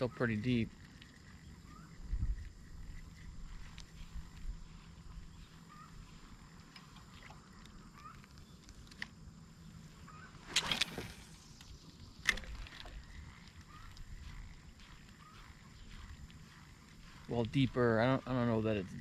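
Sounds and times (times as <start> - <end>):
faint bird chirps: 0.0 - 8.8, 9.5 - 19.0
low wind rumble: 0.7 - 6.6, 10.5 - 17.8.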